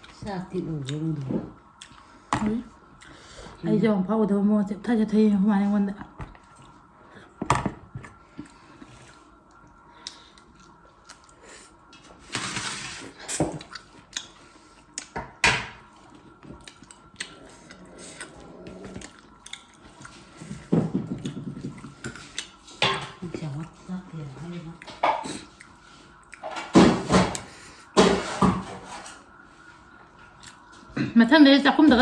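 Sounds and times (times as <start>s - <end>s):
person chewing: 1.7s - 2.2s, 8.0s - 12.0s, 13.2s - 15.2s, 15.9s - 22.7s, 24.8s - 26.5s, 30.2s - 30.9s.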